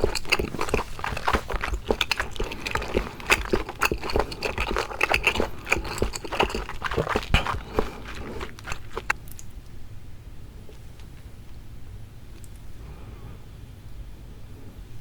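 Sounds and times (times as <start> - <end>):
wet chewing clicks: 0.0 - 9.6.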